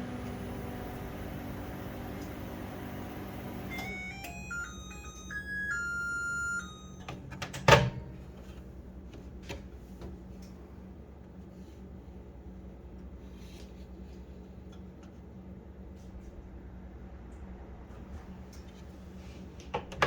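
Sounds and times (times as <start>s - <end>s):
microwave humming: 0.0s - 13.3s
electronic beep melody: 3.7s - 7.1s.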